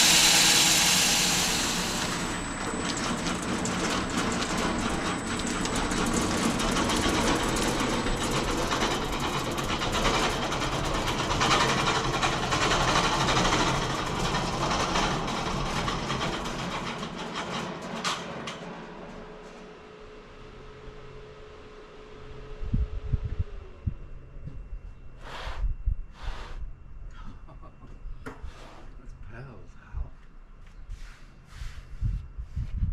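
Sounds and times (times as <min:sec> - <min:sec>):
bandsaw mill sawing log: 0:00.0 - 0:18.7.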